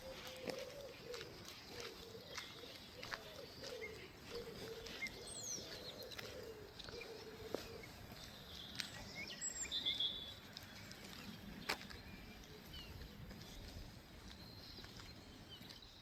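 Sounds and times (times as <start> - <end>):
pigeon cooing: 0.0 - 8.2
small birds chirping faintly: 0.0 - 16.0.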